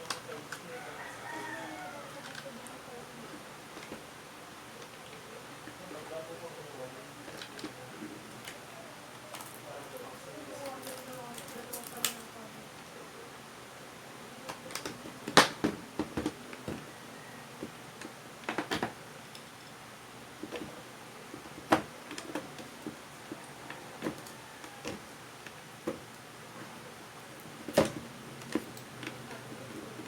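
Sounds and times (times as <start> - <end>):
small parts and tools clicking: 10.6 - 12.3.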